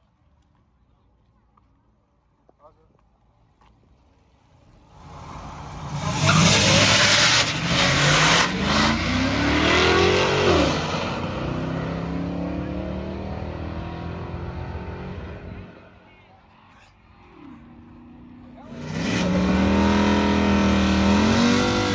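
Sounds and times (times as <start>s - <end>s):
truck engine accelerating: 4.5s - 21.9s.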